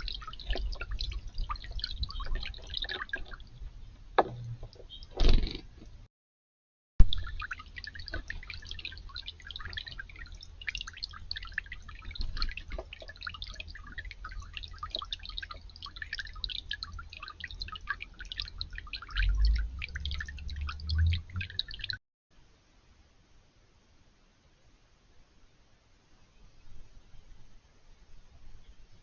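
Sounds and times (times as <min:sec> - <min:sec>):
water dripping in fountain: 0:00.0 - 0:05.2, 0:07.0 - 0:22.0
wind rumble on microphone: 0:00.0 - 0:05.2.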